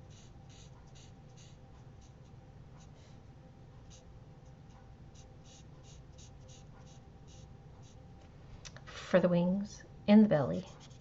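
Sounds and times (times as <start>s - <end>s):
marker scratching on card: 0.0s - 3.0s, 4.7s - 8.0s, 10.7s - 11.0s.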